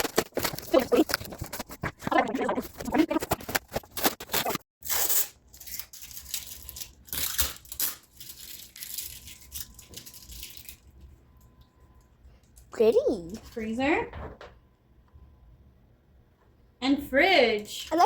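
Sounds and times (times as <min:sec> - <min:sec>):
packaging rustling and crinkling: 0:00.0 - 0:04.6, 0:05.6 - 0:10.9.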